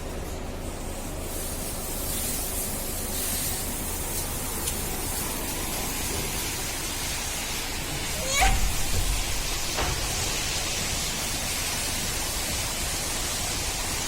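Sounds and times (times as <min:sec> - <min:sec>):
water jets hissing: 0:00.8 - 0:14.0
low machine hum: 0:03.8 - 0:13.6.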